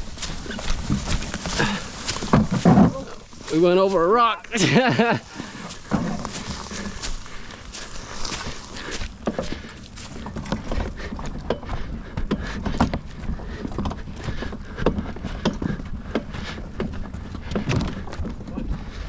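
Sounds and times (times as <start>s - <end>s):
wheelbarrow over bumpy ground: 0.0s - 19.0s.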